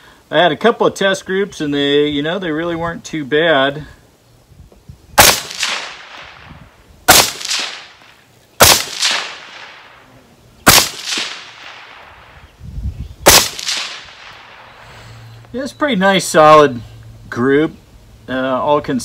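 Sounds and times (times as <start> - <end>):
rifle shots: 5.2 - 10.0, 10.6 - 12.5, 13.2 - 14.8.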